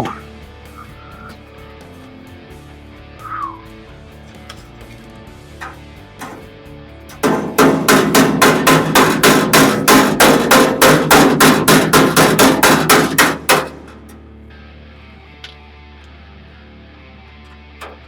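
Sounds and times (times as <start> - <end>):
background music: 0.0 - 18.0
hammer striking sheet metal: 5.6 - 6.5, 7.1 - 14.2.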